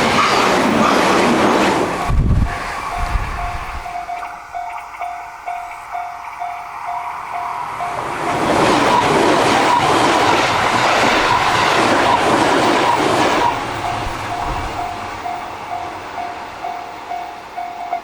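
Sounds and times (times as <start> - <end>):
train running past: 0.0 - 18.0
level crossing bell dinging: 3.4 - 8.4.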